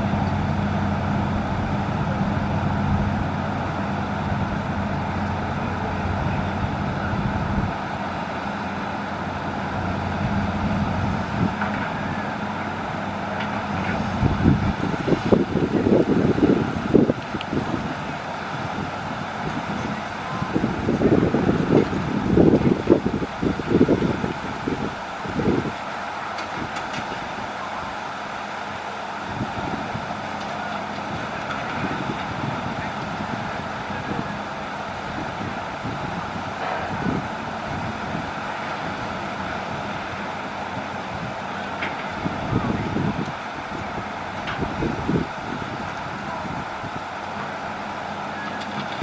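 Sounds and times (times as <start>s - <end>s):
excavator diesel engine: 0.0s - 49.0s.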